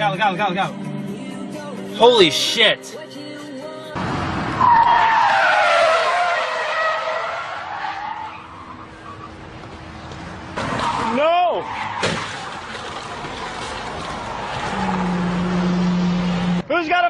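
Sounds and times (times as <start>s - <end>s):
tyres screeching in a skid: 4.6s - 9.4s, 10.5s - 16.6s.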